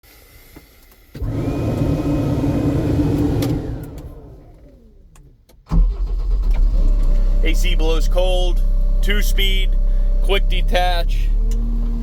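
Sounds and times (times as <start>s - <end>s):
motor whining and spinning down: 1.2s - 5.0s.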